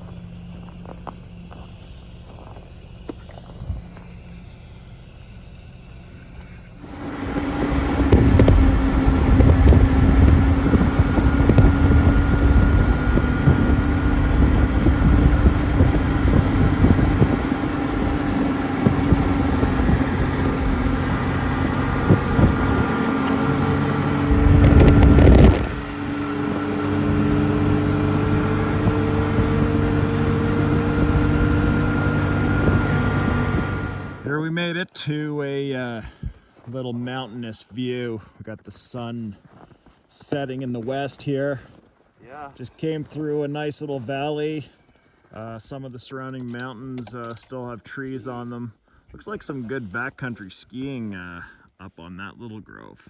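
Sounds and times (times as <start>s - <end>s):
snowmobile engine running: 0.0s - 34.4s
low buffeting noise: 0.0s - 34.6s.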